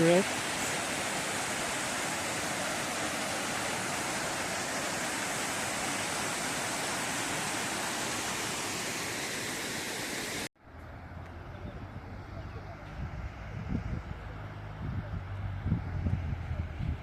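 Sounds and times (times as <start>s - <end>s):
waterfall rushing: 0.0s - 10.5s.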